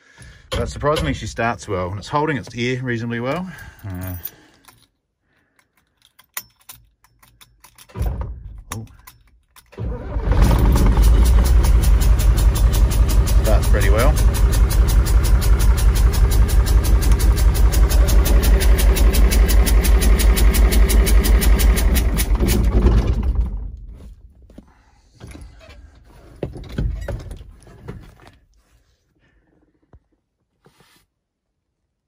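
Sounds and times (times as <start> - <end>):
truck engine idling: 10.2 - 22.9.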